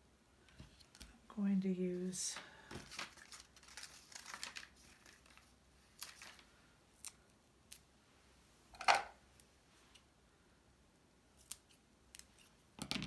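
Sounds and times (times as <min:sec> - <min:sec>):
paper rustling: 0:02.3 - 0:06.6.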